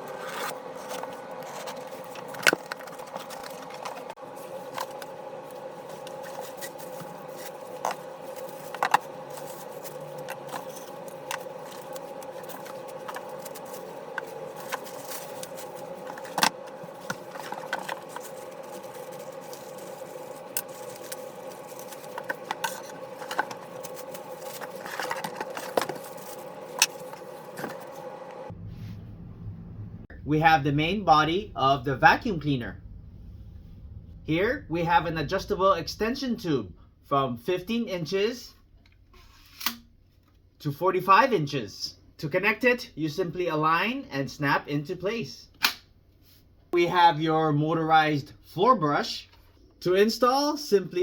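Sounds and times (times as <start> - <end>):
steady hum: 0.0 - 37.9
clicks knocks and scrapes of handling: 5.9 - 28.0.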